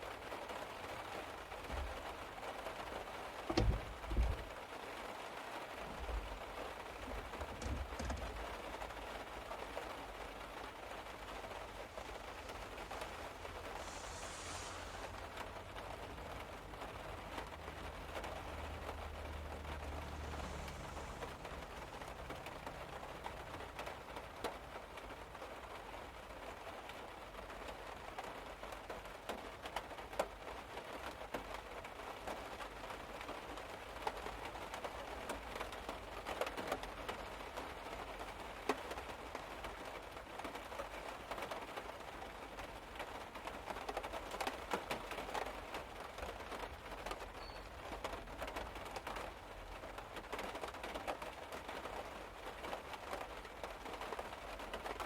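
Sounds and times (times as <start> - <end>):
rain falling on a car roof: 0.0 - 55.0
loud raindrop hits: 9.7 - 25.0.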